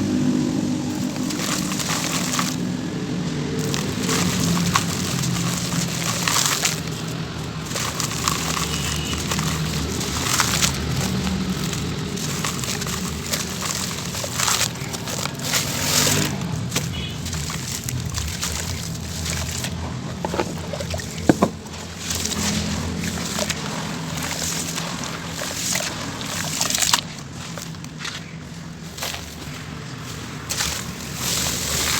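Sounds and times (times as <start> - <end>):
cement crumbling in water: 3.5 - 27.1.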